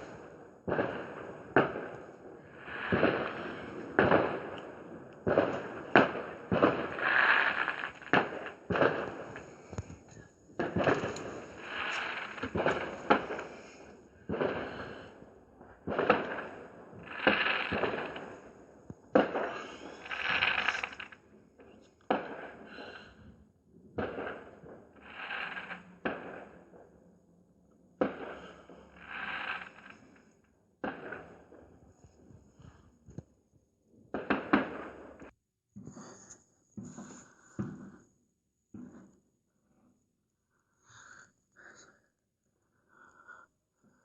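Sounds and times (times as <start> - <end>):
fireworks bangs with hiss: 0.0 - 21.2, 22.1 - 23.2, 24.0 - 26.7, 28.0 - 30.2, 30.8 - 31.8, 34.1 - 35.9.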